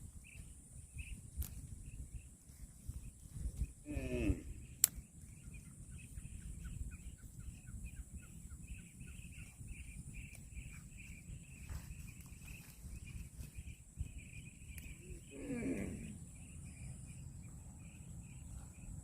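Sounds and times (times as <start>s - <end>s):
sharp click: 4.8s - 5.0s.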